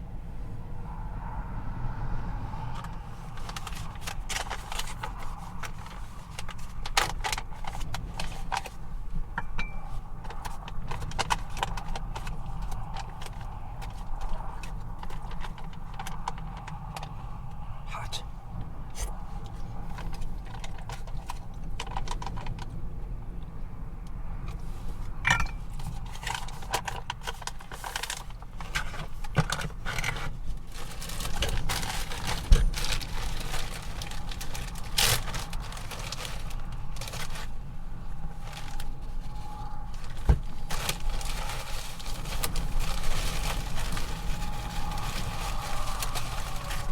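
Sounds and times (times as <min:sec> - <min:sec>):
strong wind rumble: 0:00.0 - 0:46.9.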